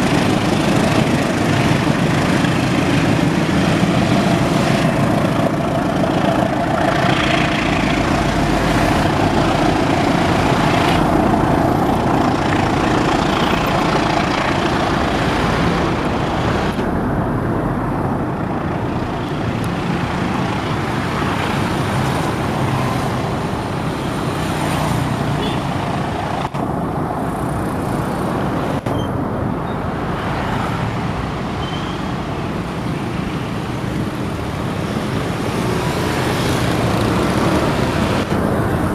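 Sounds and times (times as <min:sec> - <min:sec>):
vehicle rumble and hiss: 0:00.0 - 0:38.9.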